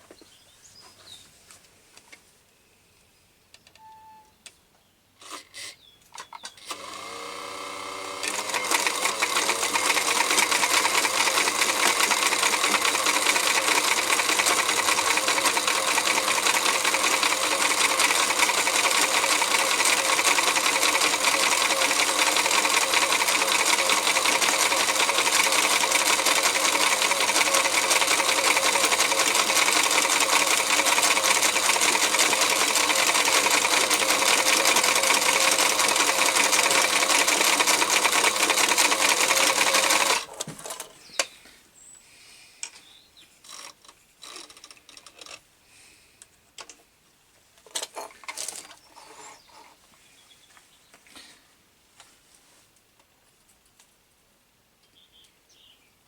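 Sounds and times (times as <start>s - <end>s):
electric sewing machine running: 6.6s - 40.8s.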